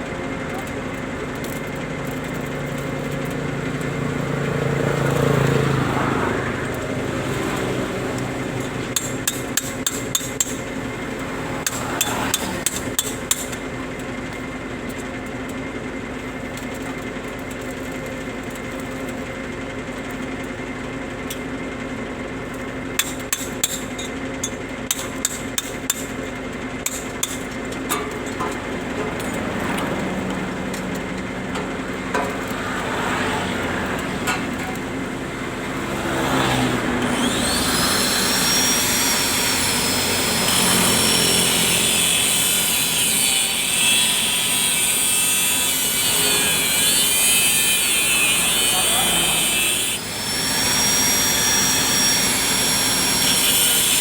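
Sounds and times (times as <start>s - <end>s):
engine hum: 0.0s - 15.7s, 26.3s - 54.0s
vehicle passing: 4.0s - 9.0s, 28.5s - 41.9s, 48.3s - 50.6s.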